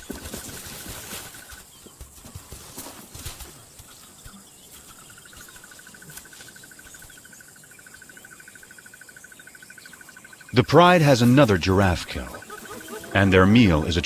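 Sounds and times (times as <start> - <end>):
faint hiss of insects: 0.0 - 14.0
insect pulsing trill: 3.2 - 14.0.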